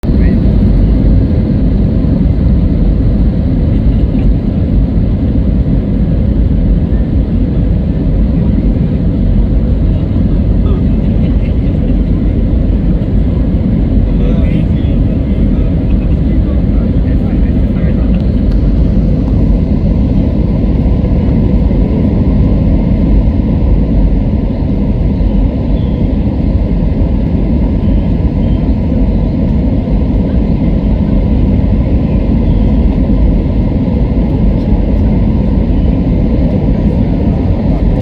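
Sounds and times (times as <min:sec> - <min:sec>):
airliner cabin low rumble: 0:00.0 - 0:38.0.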